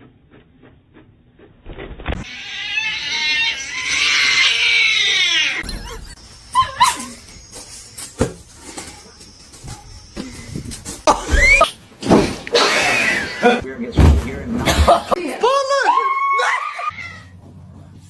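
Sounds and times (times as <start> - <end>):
drawn-out animal cry: 2.2 - 5.9.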